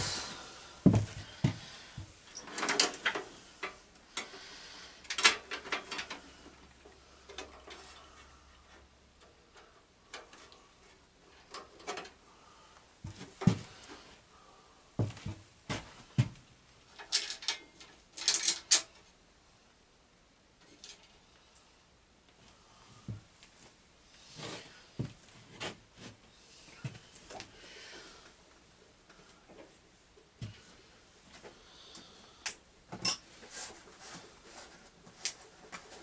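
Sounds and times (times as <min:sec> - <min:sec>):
metal tools clanking and rattling: 0:17.0 - 0:18.9.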